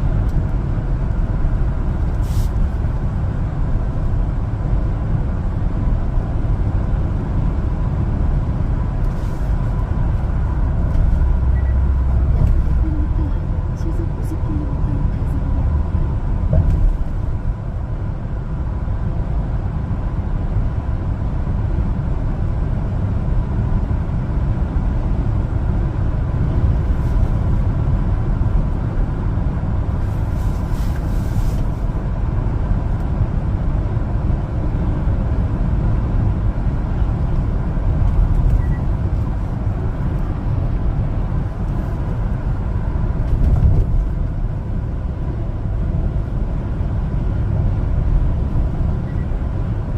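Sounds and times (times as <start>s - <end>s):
truck engine rumbling: 0.0s - 49.9s.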